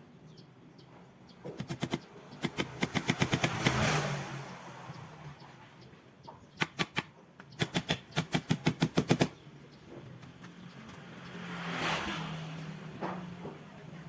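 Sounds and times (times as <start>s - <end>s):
sharp knocks: 1.4s - 3.9s.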